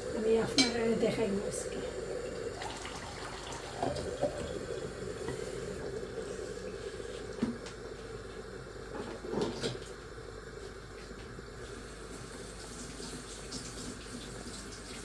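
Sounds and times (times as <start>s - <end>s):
running water: 0.0s - 7.6s, 11.6s - 15.0s.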